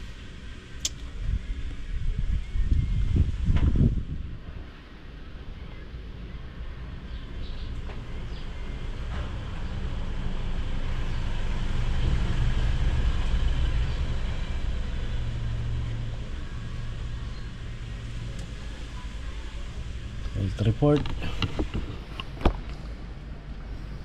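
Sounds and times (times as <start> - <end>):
diesel engine droning: 5.4 - 24.0.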